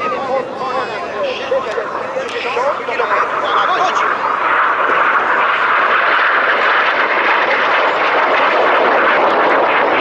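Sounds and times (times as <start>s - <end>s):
aircraft engine roar: 0.0s - 10.0s.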